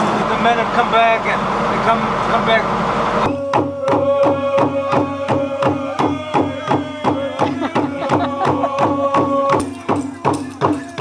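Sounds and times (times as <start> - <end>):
drums beaten in steady rhythm: 3.2 - 11.0
group of voices chanting: 3.2 - 11.0.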